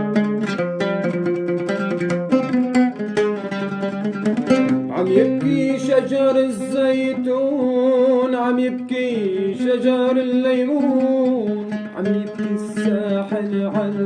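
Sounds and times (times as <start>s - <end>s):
sustained musical accompaniment: 0.0s - 7.6s
man singing long notes: 4.8s - 14.0s.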